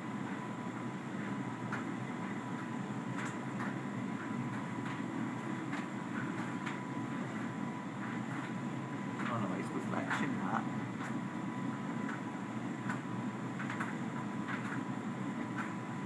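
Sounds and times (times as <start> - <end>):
faint steady whine: 0.0 - 16.0
tumble dryer rumbling: 9.1 - 11.1.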